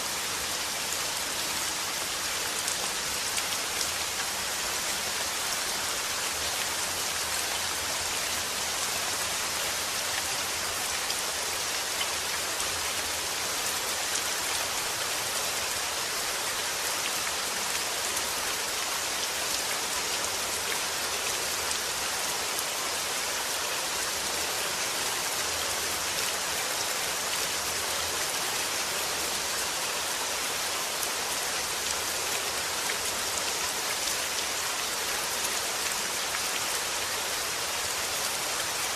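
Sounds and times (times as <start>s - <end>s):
rain pattering: 0.1s - 22.8s.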